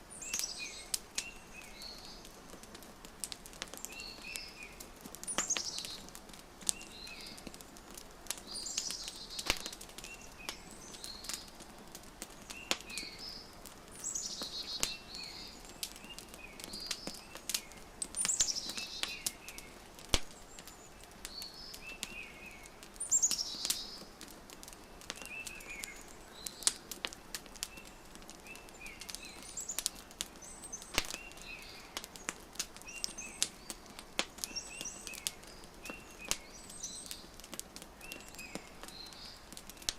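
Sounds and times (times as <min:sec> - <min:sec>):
songbirds chirping: 0:00.0 - 0:39.9
wood fire crackling: 0:00.0 - 0:39.9.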